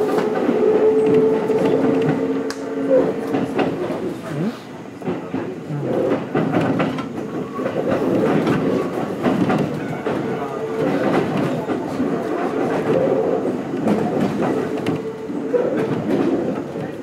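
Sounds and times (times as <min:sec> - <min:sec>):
wheels clacking over rail joints: 0:00.0 - 0:04.2, 0:05.0 - 0:17.0
train running rumble: 0:00.0 - 0:17.0.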